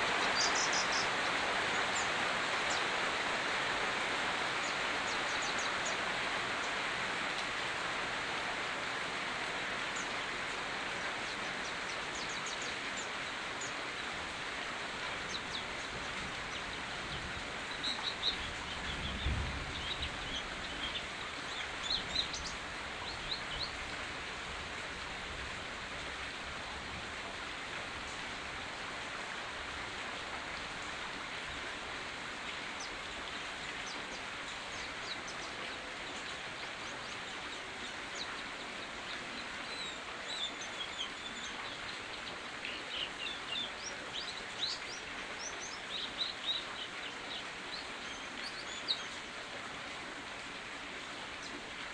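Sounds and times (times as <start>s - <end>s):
rain falling: 0.0s - 51.9s.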